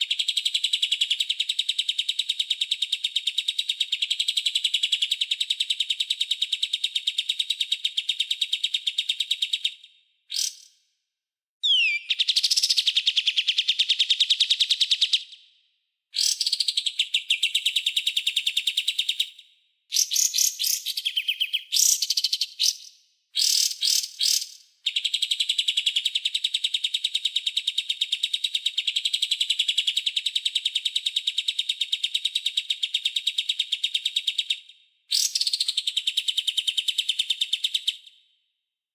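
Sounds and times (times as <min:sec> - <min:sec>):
songbird harsh rapid trills: 0:11.6 - 0:12.7.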